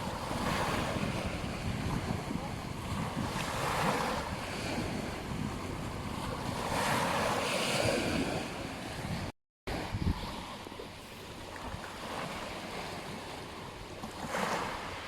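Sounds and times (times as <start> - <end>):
wind buffeting microphone: 0.0 - 10.8
surf washing onto beach: 0.0 - 15.0.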